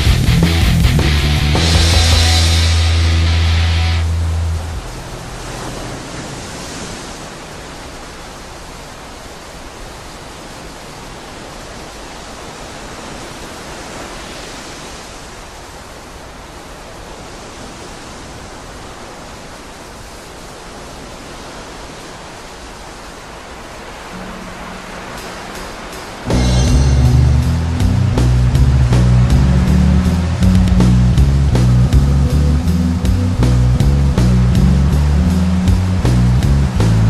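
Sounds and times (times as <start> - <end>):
steady rushing noise: 0.0 - 37.0
low steady tone: 24.1 - 36.8.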